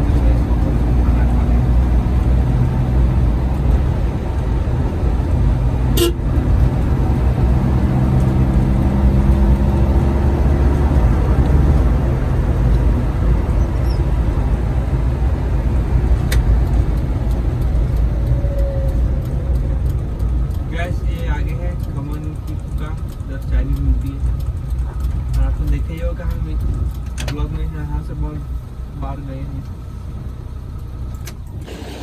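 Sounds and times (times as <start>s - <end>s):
vehicle engine and tyres rumbling: 0.0s - 32.0s
car horn: 5.9s - 6.4s.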